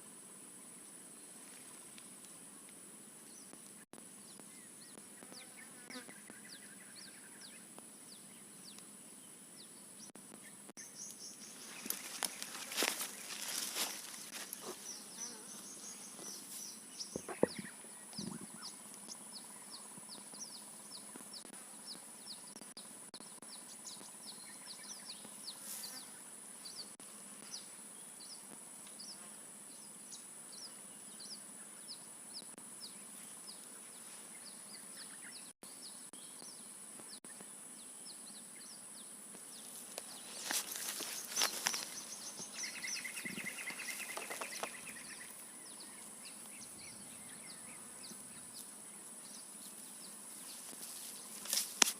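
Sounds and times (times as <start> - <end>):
crackling or rustling: 11.6 - 14.8, 39.7 - 42.5, 49.7 - 51.9.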